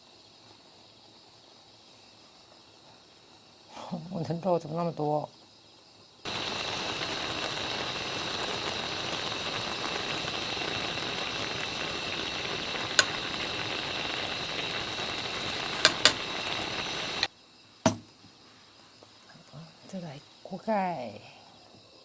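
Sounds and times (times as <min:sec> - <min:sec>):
food sizzling and bubbling: 0:06.3 - 0:17.3
sharp utensil clicks: 0:06.3 - 0:17.3.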